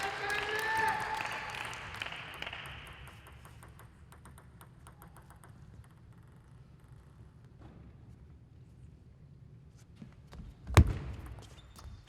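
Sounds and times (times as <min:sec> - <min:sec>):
hall applause: 0:00.0 - 0:03.1
faint table tennis ball tap: 0:02.1 - 0:07.2.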